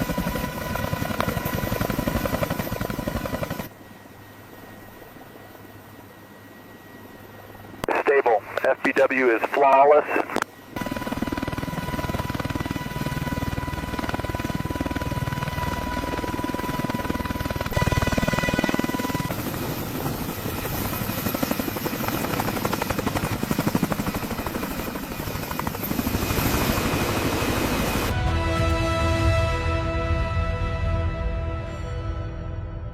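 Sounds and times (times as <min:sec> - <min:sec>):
helicopter rotor chopping: 0:00.0 - 0:03.7, 0:10.2 - 0:28.1
helicopter turbine whine: 0:00.0 - 0:31.8.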